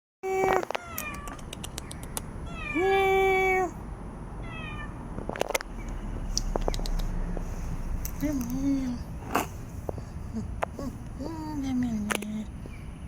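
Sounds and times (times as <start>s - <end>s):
cat meowing: 0.2s - 3.8s, 4.4s - 5.0s
sharp clicks: 0.6s - 2.3s, 5.2s - 7.2s.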